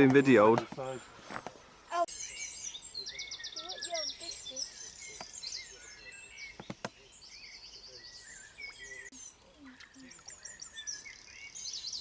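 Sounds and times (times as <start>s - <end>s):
faint outdoor background: 0.0s - 12.0s
small birds singing and chirping: 0.0s - 12.0s.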